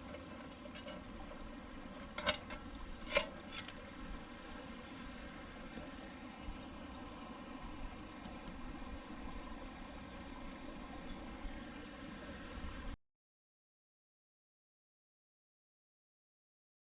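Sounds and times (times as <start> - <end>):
stream murmuring: 0.0 - 13.0.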